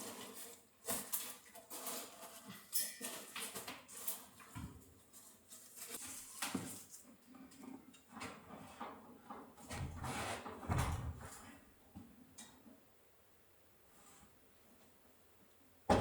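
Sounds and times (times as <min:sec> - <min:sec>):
scraping and rustling of materials: 0:00.0 - 0:11.7.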